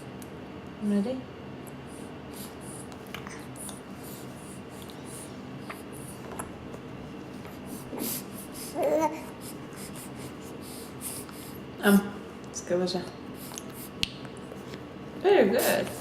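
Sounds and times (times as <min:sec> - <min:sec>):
baby vocal sound: 0:08.0 - 0:10.0.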